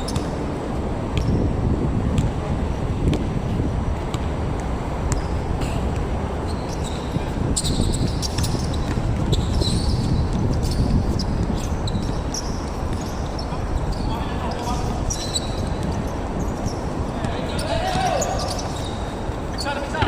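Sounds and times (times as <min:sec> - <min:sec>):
wind buffeting microphone: 0:00.0 - 0:19.6
basketball bouncing on court: 0:01.1 - 0:01.4, 0:02.1 - 0:02.4, 0:03.0 - 0:03.3, 0:04.0 - 0:18.9
short high squeaks: 0:06.4 - 0:16.9, 0:17.5 - 0:20.0.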